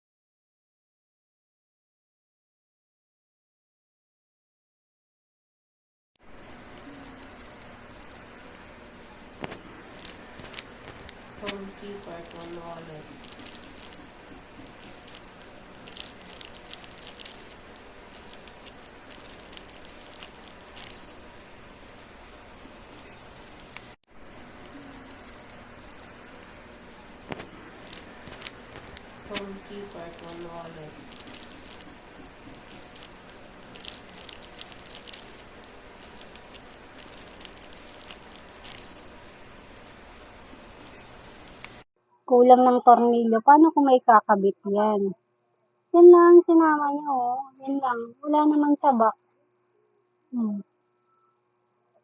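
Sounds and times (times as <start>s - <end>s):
faint high beeps: 6.8s - 7.6s, 24.7s - 25.5s
short high-pitched beeps: 6.8s - 7.6s
plastic parts clicking and crinkling: 9.4s - 21.0s, 27.3s - 38.9s.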